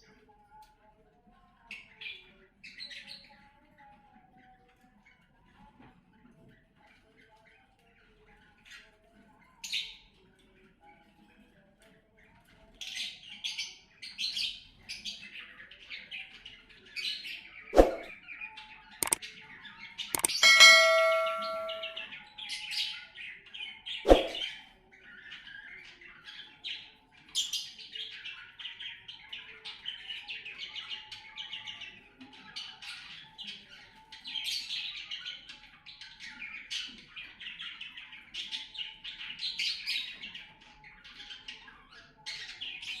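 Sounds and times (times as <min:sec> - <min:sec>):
sharp knock: 0:17.8 - 0:18.1, 0:24.1 - 0:24.4
steady pitched tone: 0:20.2 - 0:22.0.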